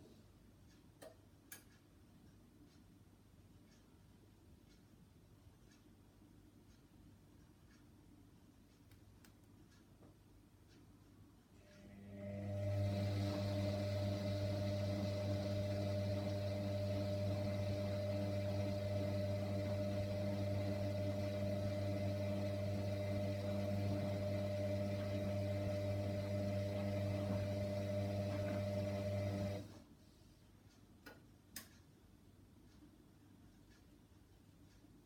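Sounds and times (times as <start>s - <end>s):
faint clicks: 8.6s - 11.1s, 30.7s - 32.0s
washer dryer humming: 11.8s - 29.8s.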